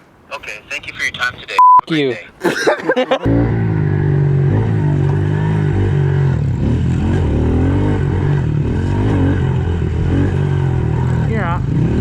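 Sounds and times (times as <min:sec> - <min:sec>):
pit bike engine revving: 0:03.2 - 0:12.0.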